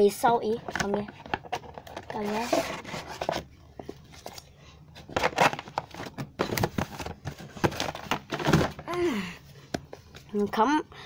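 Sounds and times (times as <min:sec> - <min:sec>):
paper knocking and rustling: 0:05.0 - 0:08.9.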